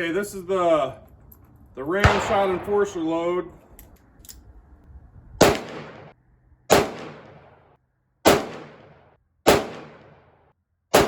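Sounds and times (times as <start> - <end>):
revolver gunshots with echo: 2.0 - 3.6, 5.4 - 10.3.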